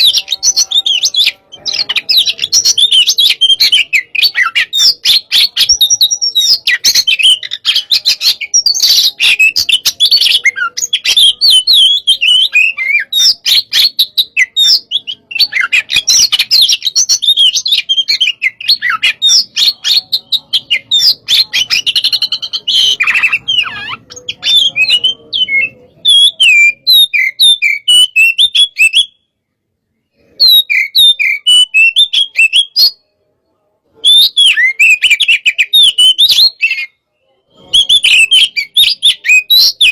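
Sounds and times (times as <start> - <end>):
bird singing rapid chirps: 0.0 - 29.2, 30.1 - 33.0, 33.9 - 39.9.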